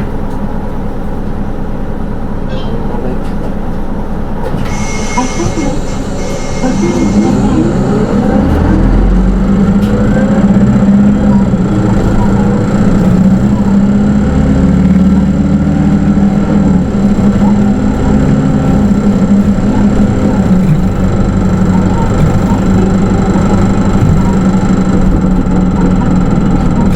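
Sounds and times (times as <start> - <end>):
bus diesel engine: 0.0 - 26.9.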